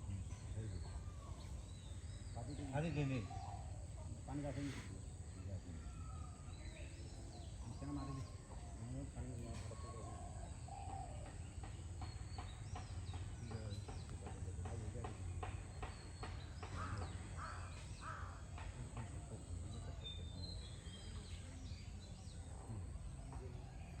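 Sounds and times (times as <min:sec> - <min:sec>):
birds chirping: 0:00.0 - 0:24.0
crows cawing: 0:16.7 - 0:18.8.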